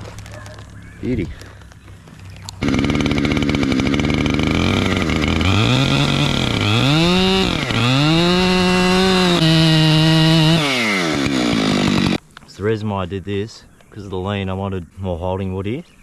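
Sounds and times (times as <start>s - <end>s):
chainsaw cutting: 0.0s - 12.2s.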